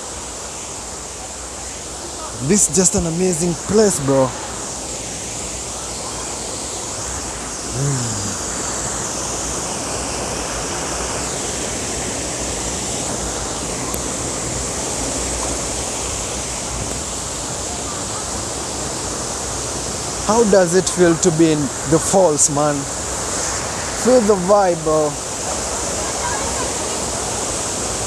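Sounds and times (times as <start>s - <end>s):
waterfall rushing: 0.0s - 28.0s
person calling out: 7.7s - 8.4s.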